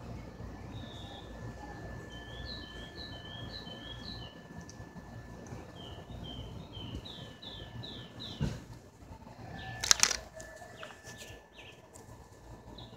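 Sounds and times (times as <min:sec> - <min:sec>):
faint steady high tone: 0:00.1 - 0:04.7
sharp clicks: 0:09.8 - 0:10.3.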